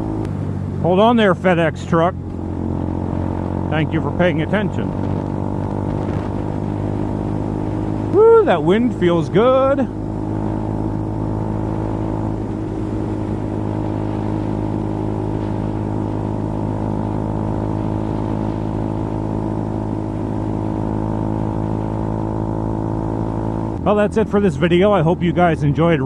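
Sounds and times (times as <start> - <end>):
motorcycle engine droning: 0.0 - 26.0.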